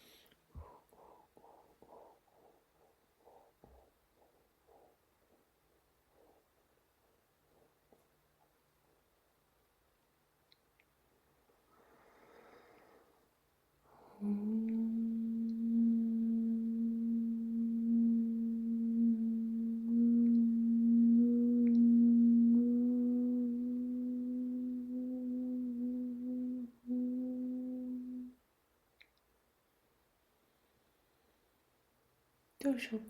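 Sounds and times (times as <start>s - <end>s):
breath: 11.7s - 14.2s
person humming low note: 14.0s - 28.4s.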